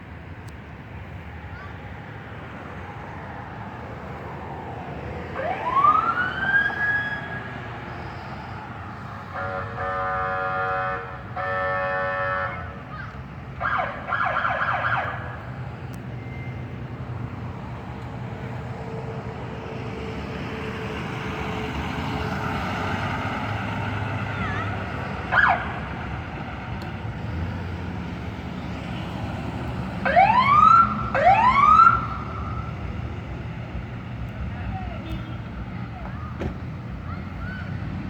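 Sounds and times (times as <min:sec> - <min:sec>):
low rumble of passing engines: 0:00.0 - 0:38.0
emergency vehicle siren: 0:04.2 - 0:12.8, 0:13.5 - 0:17.8, 0:18.5 - 0:33.1, 0:34.5 - 0:38.0
loud horn blasts: 0:09.3 - 0:12.9.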